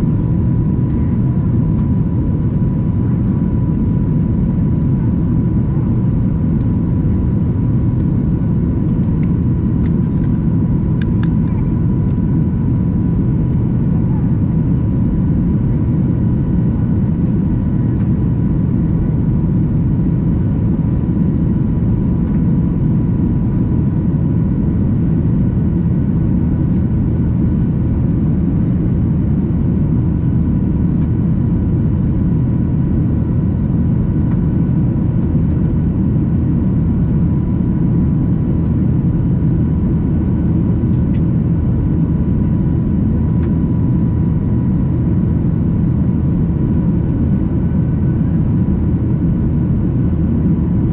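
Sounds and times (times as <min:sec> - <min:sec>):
airplane cabin engine roar: 0:00.0 - 0:50.9.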